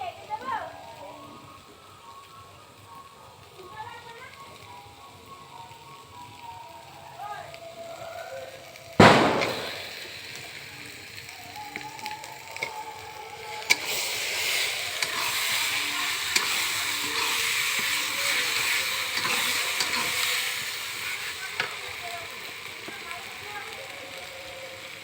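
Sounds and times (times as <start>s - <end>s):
food sizzling in hot oil: 0.0s - 25.0s
sharp click: 9.0s - 9.9s.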